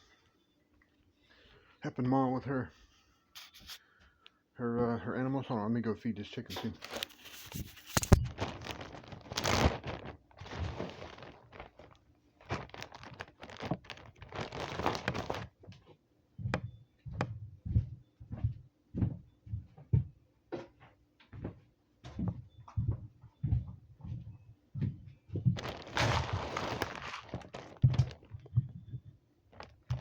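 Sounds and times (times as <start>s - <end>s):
feed pouring from a bag: 6.5s - 15.5s, 25.6s - 28.6s, 29.5s - 30.0s
heavy footsteps: 21.4s - 30.0s.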